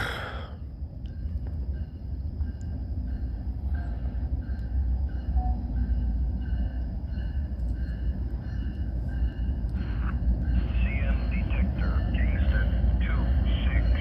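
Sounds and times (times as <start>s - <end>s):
freight train rumbling on rails: 0.0s - 14.0s.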